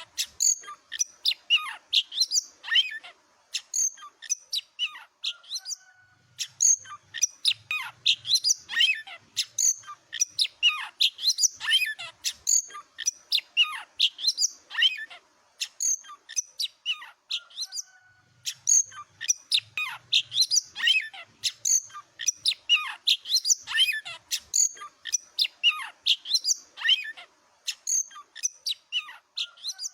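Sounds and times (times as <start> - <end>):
magpie-robin singing: 0.0 - 29.9.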